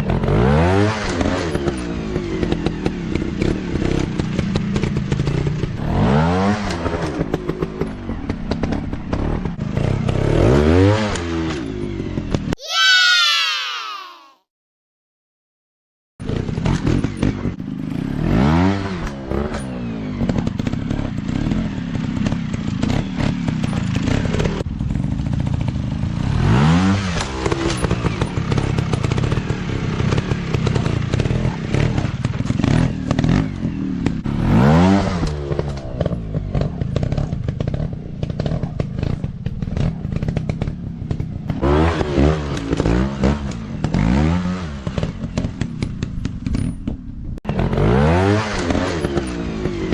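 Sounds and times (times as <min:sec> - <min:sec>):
dirt bike engines revving: 0:26.1 - 0:46.6, 0:47.5 - 0:49.9.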